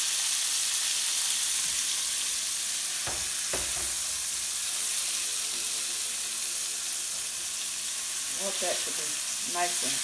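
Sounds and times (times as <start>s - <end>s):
meat patties sizzling in a skillet: 0.0s - 10.0s
spatula knocking on a pan: 3.0s - 4.1s.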